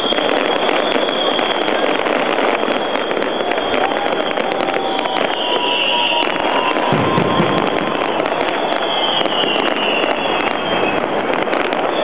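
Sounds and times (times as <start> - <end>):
deep firework bang: 0.0 - 12.0
fireworks crackling and popping: 0.0 - 12.0
fireworks shells bursting: 0.0 - 12.0.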